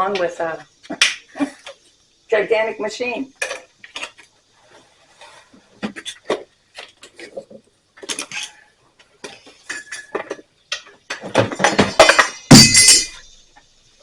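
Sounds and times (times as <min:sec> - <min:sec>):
metal tools clinking: 0:11.6 - 0:13.3.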